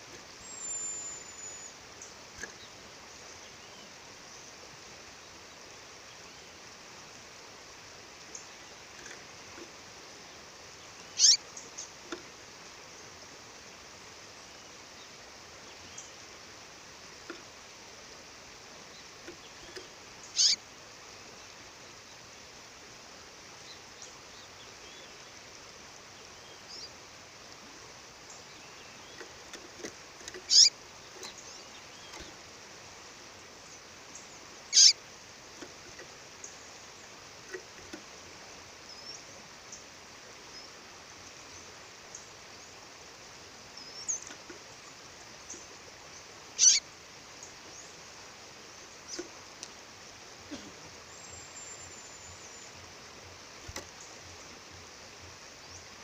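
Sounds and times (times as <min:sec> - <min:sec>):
faint bird chirps: 0:00.0 - 0:04.6, 0:10.2 - 0:12.0, 0:18.8 - 0:20.6, 0:26.1 - 0:27.0, 0:30.2 - 0:32.4, 0:33.6 - 0:35.0, 0:43.6 - 0:48.0, 0:50.4 - 0:53.1
bird high short calls: 0:11.1 - 0:11.4, 0:20.3 - 0:20.6, 0:30.4 - 0:30.8, 0:34.7 - 0:35.0, 0:46.6 - 0:46.8.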